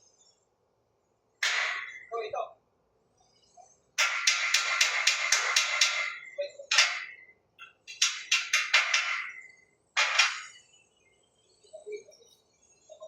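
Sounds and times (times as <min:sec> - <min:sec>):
faint bird chirps: 0:10.5 - 0:13.0.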